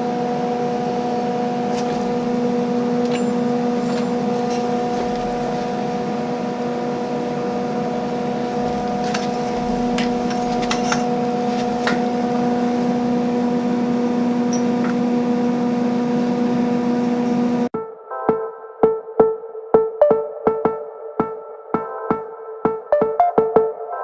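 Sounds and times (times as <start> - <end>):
steady machine hum: 0.0 - 17.7.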